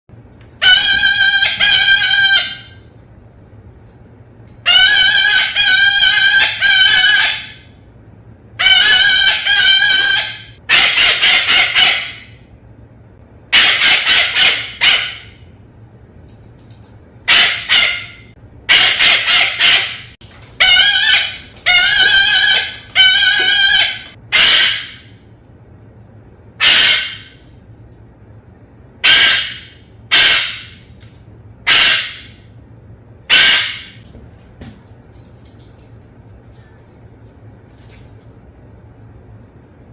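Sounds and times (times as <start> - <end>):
parrot honking calls: 0.6 - 2.8, 4.6 - 7.7, 8.6 - 12.4, 13.5 - 15.4, 17.2 - 25.2, 26.6 - 27.5, 29.0 - 30.9, 31.6 - 32.4, 33.3 - 34.0.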